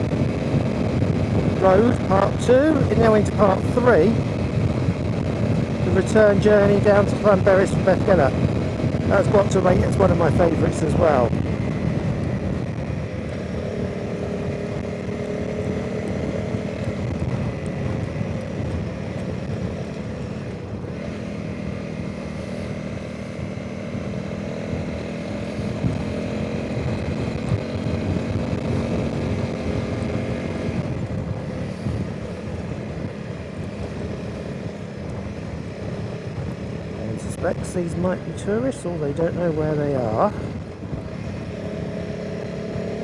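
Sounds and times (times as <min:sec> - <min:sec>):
motorcycle engine running: 0:00.0 - 0:43.0
wind noise on microphone: 0:00.0 - 0:43.0.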